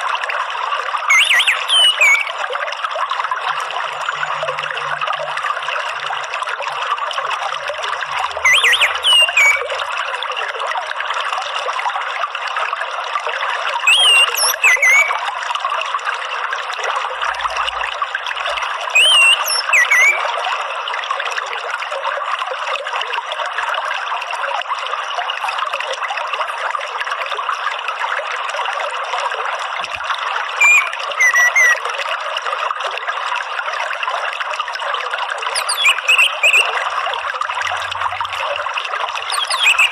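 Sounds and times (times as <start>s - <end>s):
trickle of running water: 0.0s - 39.9s
whistled bird notes: 1.1s - 2.4s, 8.2s - 9.8s, 13.9s - 15.3s, 19.0s - 20.3s, 30.6s - 31.8s, 35.5s - 36.8s, 39.2s - 39.9s.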